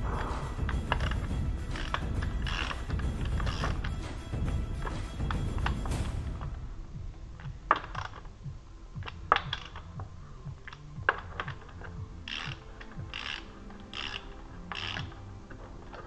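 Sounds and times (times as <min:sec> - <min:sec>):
rasping ratchet bursts: 0:00.6 - 0:06.0, 0:10.7 - 0:16.0.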